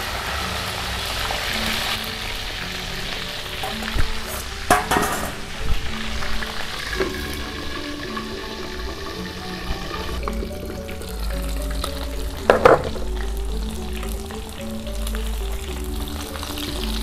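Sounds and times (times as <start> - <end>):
chicken deep-frying in oil: 0.0 - 17.0
metal utensils scraping a wok: 1.4 - 7.0.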